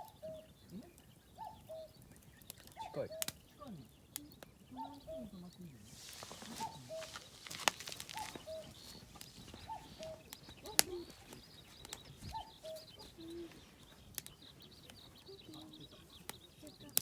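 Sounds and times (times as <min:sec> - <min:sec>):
cuckoo calling: 0:00.0 - 0:17.0
sharp cracks: 0:02.1 - 0:03.5, 0:06.0 - 0:11.1.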